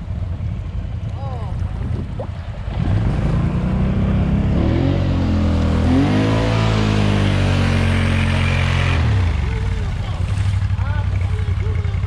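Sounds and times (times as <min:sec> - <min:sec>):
atv engine revving: 0:02.4 - 0:12.0.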